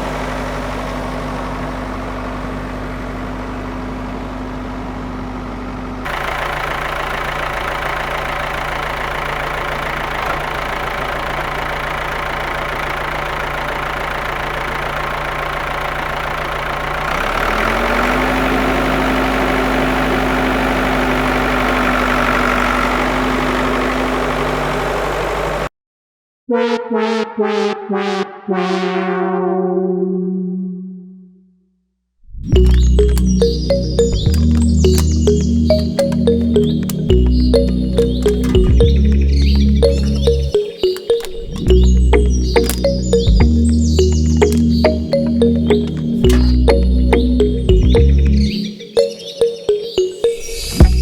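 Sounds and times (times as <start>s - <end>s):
motor humming: 32.5s - 48.6s.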